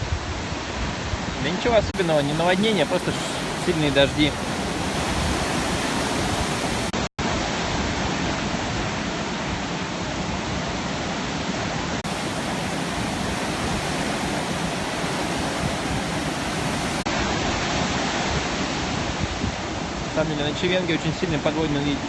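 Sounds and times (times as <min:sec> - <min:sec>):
heavy sea surf: 0:00.7 - 0:20.6.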